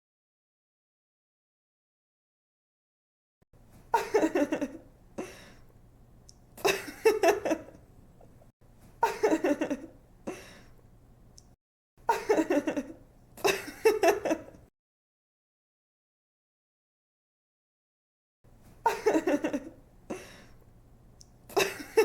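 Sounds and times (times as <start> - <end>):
young woman giggling: 3.9 - 5.3, 6.6 - 7.8, 9.0 - 10.5, 12.1 - 14.6, 18.8 - 20.3, 21.5 - 22.0.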